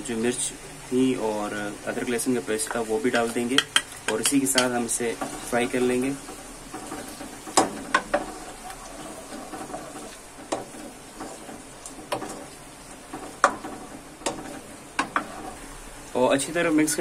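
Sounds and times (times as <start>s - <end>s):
potatoes sizzling in oil: 0.0s - 17.0s
spatula knocking a pan: 2.6s - 8.7s, 9.3s - 15.5s.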